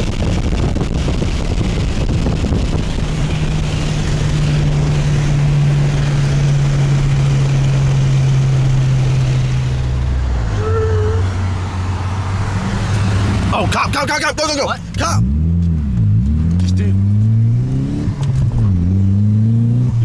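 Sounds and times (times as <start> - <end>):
wind rush: 0.0 - 13.5
car engine running hard: 0.0 - 20.0
road noise: 0.0 - 20.0.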